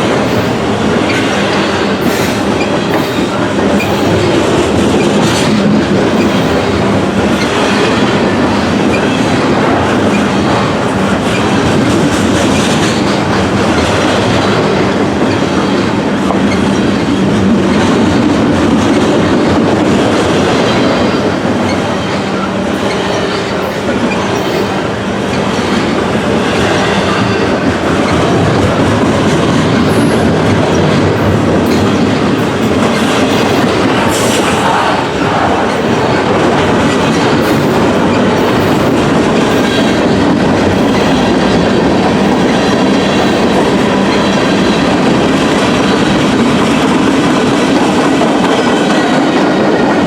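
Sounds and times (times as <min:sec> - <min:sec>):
train wheels clattering on rails: 0:00.0 - 0:50.0.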